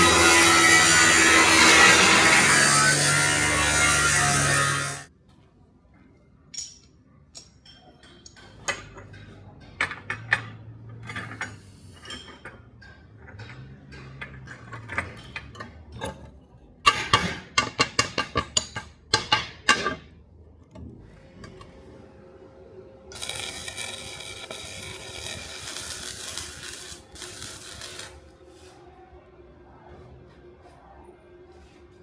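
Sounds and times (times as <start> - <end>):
steel pieces clinking and tapping: 6.5 - 9.0.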